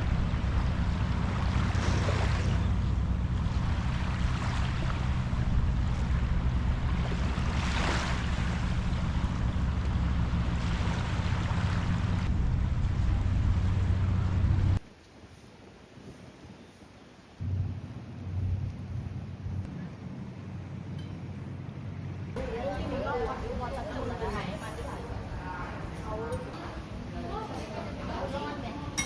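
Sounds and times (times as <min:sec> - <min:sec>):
small waves washing on beach: 0:00.0 - 0:12.3
steady low rumble: 0:00.0 - 0:14.8, 0:17.4 - 0:27.4.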